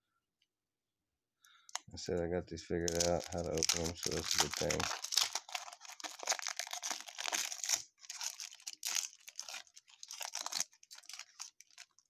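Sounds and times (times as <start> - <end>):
wrapper tearing and crinkling: 2.9 - 12.0.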